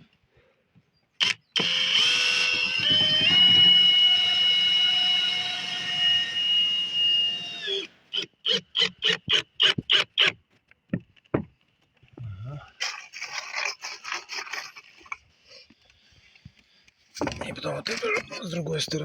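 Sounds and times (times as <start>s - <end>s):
power tool high whine: 1.2s - 8.2s.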